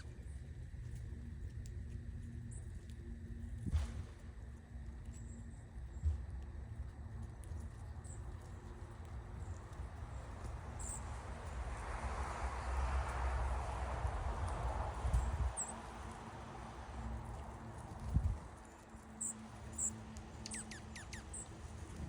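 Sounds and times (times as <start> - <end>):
small birds chirping: 7.8 - 11.4, 15.1 - 16.2, 17.2 - 22.0.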